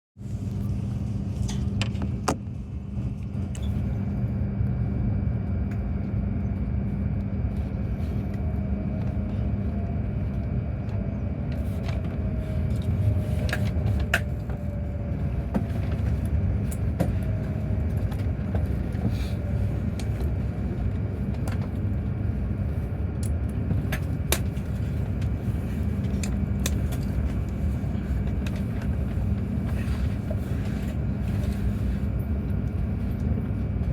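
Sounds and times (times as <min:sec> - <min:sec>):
constant hum: 0:00.2 - 0:33.9
moving vehicle rumble: 0:00.2 - 0:33.9.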